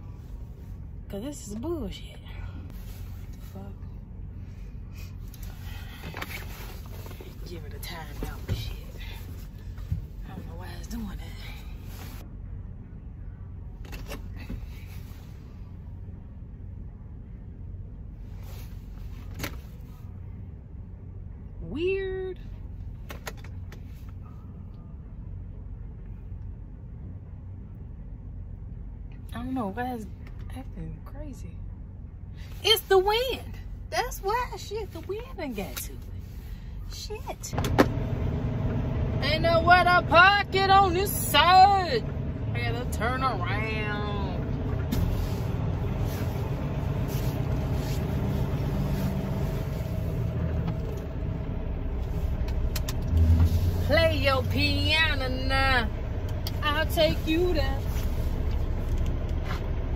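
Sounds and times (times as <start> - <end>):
diesel engine humming: 0.0 - 59.9
road and wind noise: 0.0 - 59.9
truck diesel engine droning: 37.5 - 59.9.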